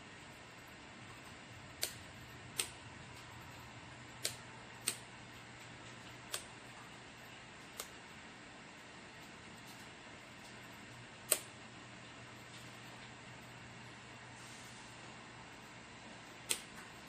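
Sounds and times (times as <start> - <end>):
faint low hum: 0.0 - 17.0
sharp clicks: 1.8 - 2.0, 2.6 - 3.3, 4.2 - 5.0, 5.8 - 6.5, 11.3 - 11.5, 16.4 - 16.7.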